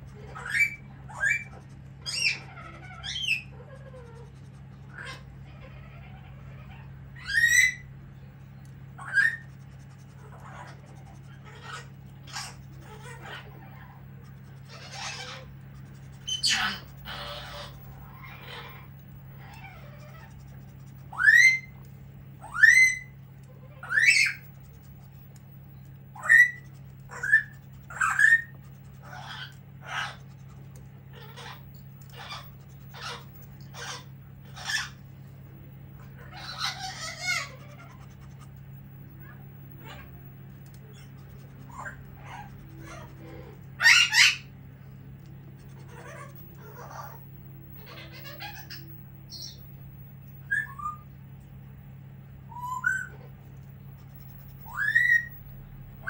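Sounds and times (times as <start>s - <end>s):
bird screeching: 0.1s - 7.9s, 9.0s - 9.6s, 10.2s - 21.8s, 22.4s - 24.7s, 26.1s - 30.4s, 31.1s - 35.0s, 36.0s - 38.6s, 40.8s - 44.5s, 45.6s - 49.6s, 50.4s - 51.1s, 52.5s - 53.3s, 54.4s - 55.5s
pet bird whistling: 0.3s - 4.1s, 7.2s - 7.9s, 9.0s - 9.6s, 10.4s - 21.8s, 22.4s - 24.7s, 25.7s - 30.5s, 40.8s - 44.5s, 47.8s - 49.6s, 50.4s - 51.1s, 52.5s - 53.3s, 54.2s - 55.5s.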